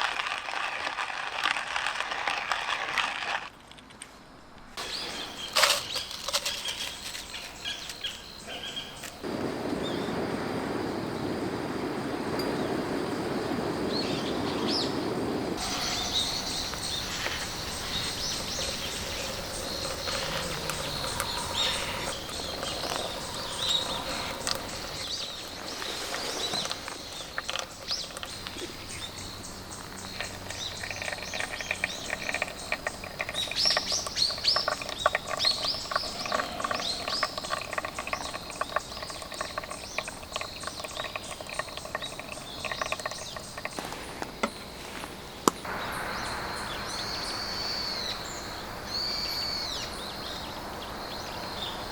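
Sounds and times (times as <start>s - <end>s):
birds chirping and calling: 13.9s - 44.6s.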